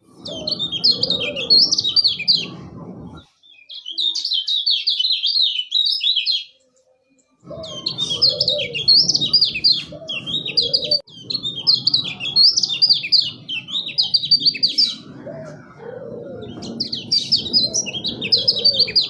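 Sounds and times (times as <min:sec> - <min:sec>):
low rough noise: 0:00.0 - 0:03.3.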